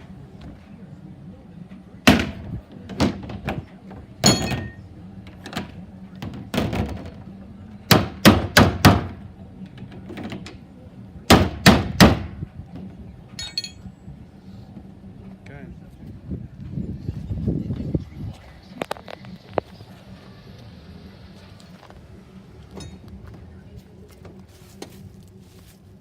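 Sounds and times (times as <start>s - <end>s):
low steady hum: 0.0s - 26.0s
loud knocks and bangs: 2.1s - 3.6s.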